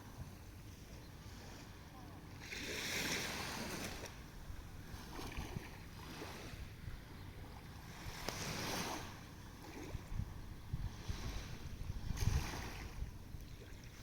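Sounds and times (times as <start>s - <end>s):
sea waves washing ashore: 0.0s - 14.0s
wind rumble on microphone: 0.0s - 14.0s.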